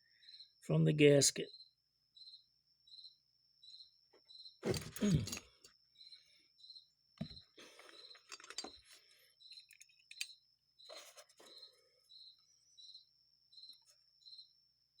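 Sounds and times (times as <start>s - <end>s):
cricket chirping: 0.0s - 15.0s
small metal clicks: 9.5s - 10.4s.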